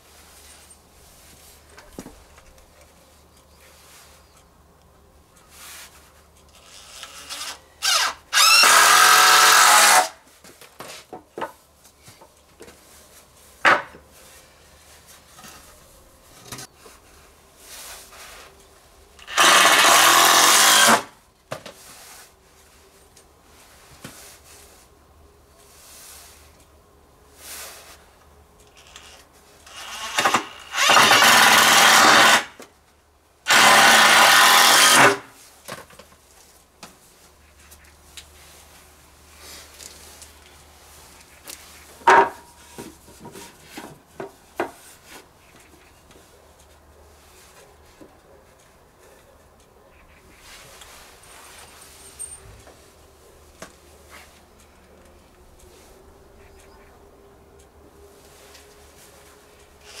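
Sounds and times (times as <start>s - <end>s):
electric drill running: 6.9s - 10.1s, 19.2s - 21.0s, 29.8s - 32.5s, 33.5s - 35.2s.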